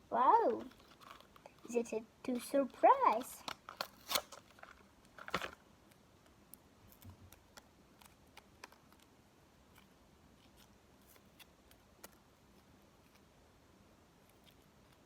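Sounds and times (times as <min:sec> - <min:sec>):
packaging crinkling: 0:03.0 - 0:05.6.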